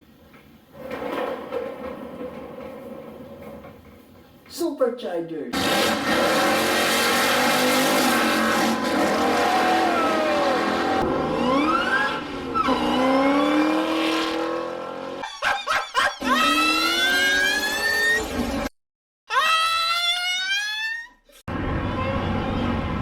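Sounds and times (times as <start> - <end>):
car engine revving: 5.6 - 15.2, 16.4 - 18.7.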